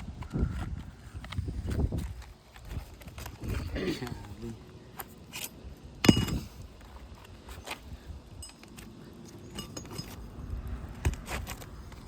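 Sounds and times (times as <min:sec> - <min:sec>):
metal tools clinking on nails: 0:08.4 - 0:10.2.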